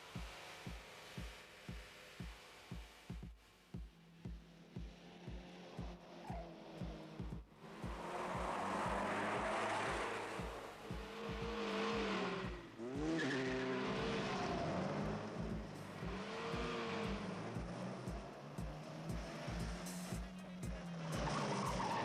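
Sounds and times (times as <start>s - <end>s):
racing car engines revving: 4.0s - 22.0s
tyres skidding: 4.4s - 22.0s.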